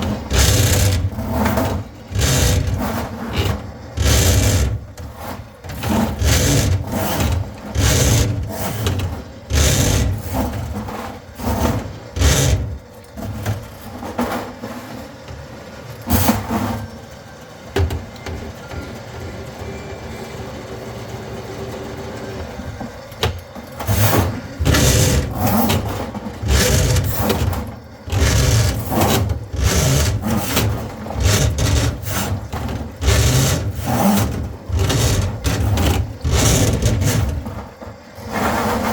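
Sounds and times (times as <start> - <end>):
cable rubbing and rattling: 0.0 - 13.6, 23.8 - 38.9
drain cleaning machine running: 0.0 - 14.9, 17.7 - 38.9.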